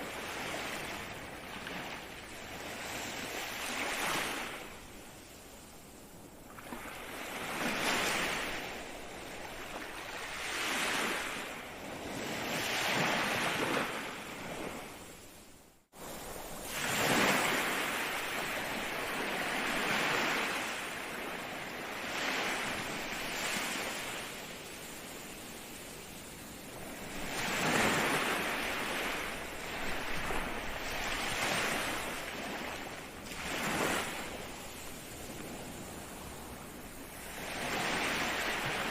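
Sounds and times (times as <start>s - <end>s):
ocean surf breaking: 16.0s - 24.4s, 26.6s - 38.9s.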